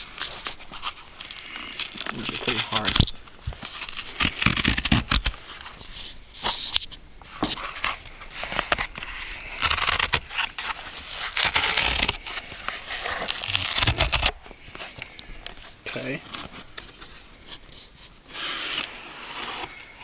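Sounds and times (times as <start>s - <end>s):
cardboard packaging scraping and rustling: 0.0s - 20.0s.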